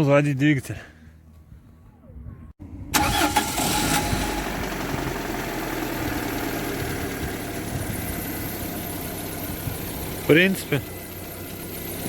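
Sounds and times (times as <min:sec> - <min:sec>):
car engine starting and idling: 0:02.6 - 0:12.0.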